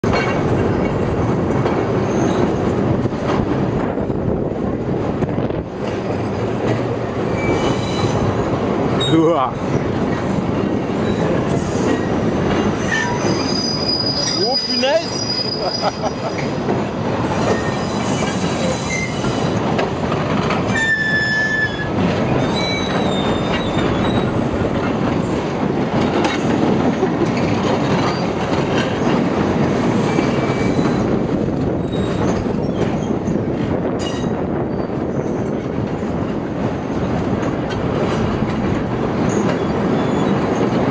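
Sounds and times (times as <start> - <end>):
train wheels rumbling on rails: 0.0 - 40.9
high wheel squeals: 7.3 - 8.3, 12.8 - 16.5, 17.4 - 19.5, 20.7 - 24.3, 30.0 - 31.1.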